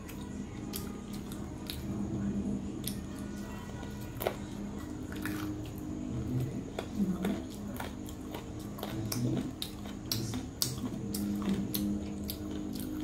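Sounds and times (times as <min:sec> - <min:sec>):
wet chewing and lip-smacking: 0:03.8 - 0:13.0.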